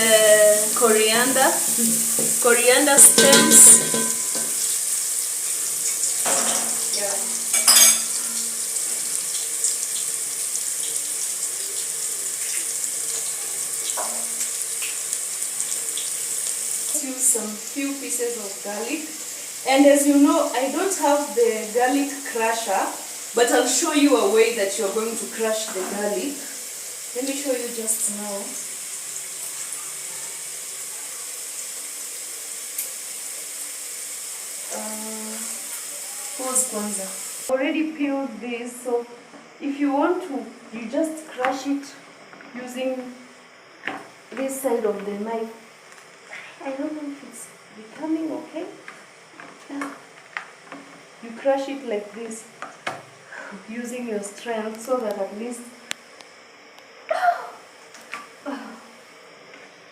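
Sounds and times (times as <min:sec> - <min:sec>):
onions sizzling in hot oil: 0:00.0 - 0:37.5, 0:48.0 - 0:53.5.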